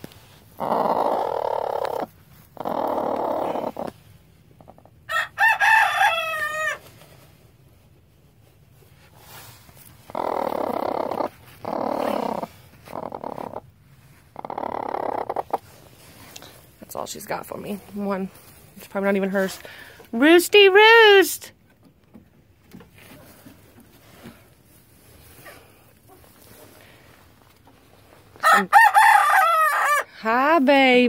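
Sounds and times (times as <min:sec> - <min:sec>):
rooster crowing: 0:05.1 - 0:06.8, 0:28.4 - 0:30.1.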